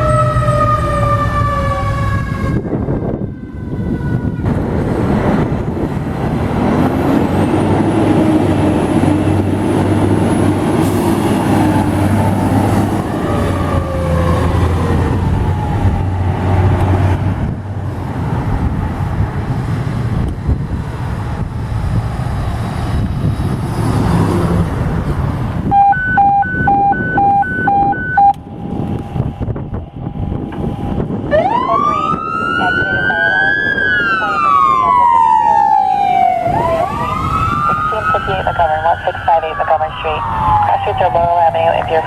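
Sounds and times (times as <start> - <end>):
siren: 0.0 - 4.9, 11.5 - 16.4, 25.7 - 42.0
engine rumble and road noise: 0.0 - 42.0
short high beeps: 25.8 - 28.4.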